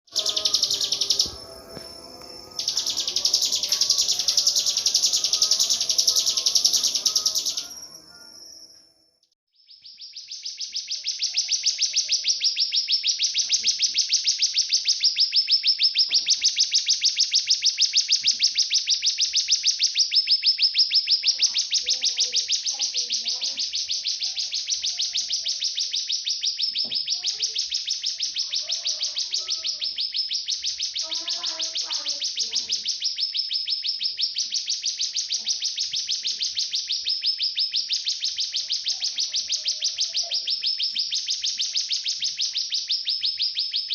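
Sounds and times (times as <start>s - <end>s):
cicada high pulsing buzz: 0.1s - 8.8s
faint low chirps: 0.1s - 9.0s.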